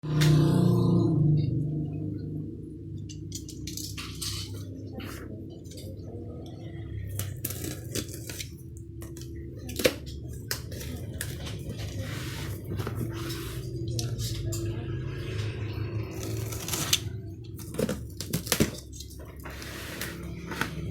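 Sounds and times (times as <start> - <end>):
cardboard and plastic packaging rustling: 7.0 - 14.0, 16.1 - 20.9.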